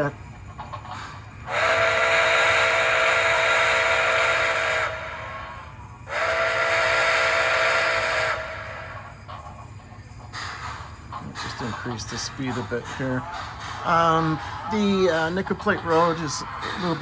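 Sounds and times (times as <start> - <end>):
faint locomotive rumble: 0.0 - 17.0
steam hiss: 1.0 - 9.4
chime steam whistle: 1.5 - 9.2.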